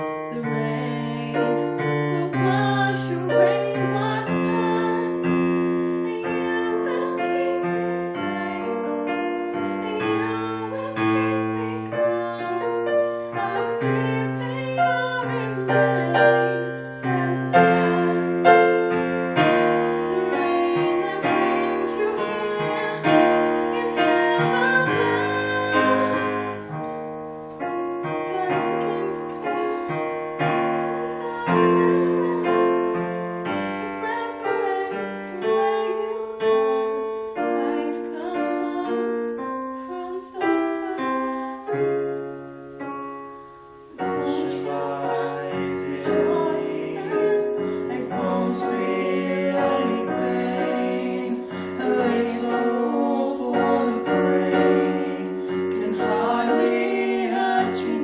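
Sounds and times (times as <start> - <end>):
piano playing held chords: 0.0 - 58.0
person singing: 20.1 - 26.8, 28.0 - 30.2, 43.8 - 58.0.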